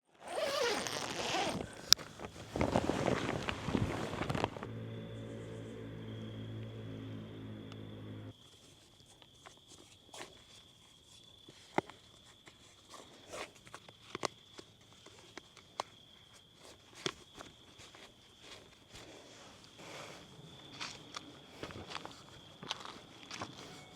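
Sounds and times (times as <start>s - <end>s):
quiet rustles: 1.3s - 4.7s
background music: 4.6s - 8.3s
faint steady high tone: 4.7s - 8.3s, 23.5s - 23.9s.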